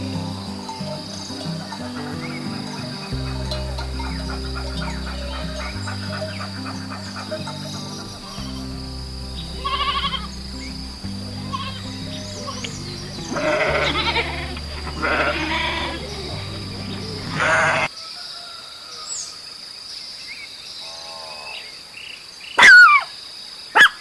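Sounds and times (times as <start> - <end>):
background music: 0.0 - 17.9
farm animal bleating: 9.5 - 17.9.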